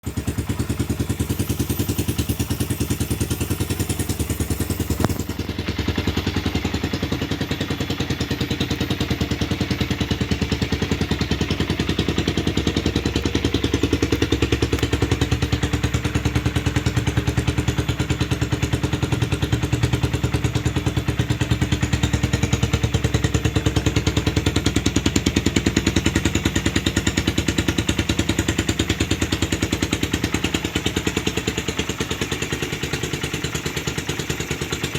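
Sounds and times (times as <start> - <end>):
motorcycle engine idling: 0.0 - 34.9
sharp click: 4.9 - 5.5.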